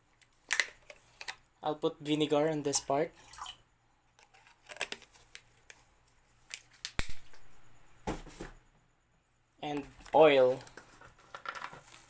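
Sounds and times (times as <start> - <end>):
container clicks and rustling: 4.2 - 5.8, 10.0 - 12.0.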